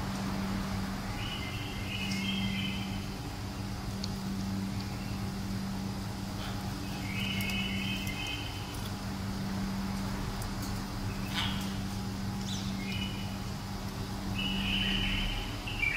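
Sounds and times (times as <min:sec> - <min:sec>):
steady low hum: 0:00.0 - 0:15.9
bird chirping in high trills: 0:01.1 - 0:03.2, 0:06.8 - 0:08.8, 0:12.4 - 0:13.5, 0:14.3 - 0:15.9.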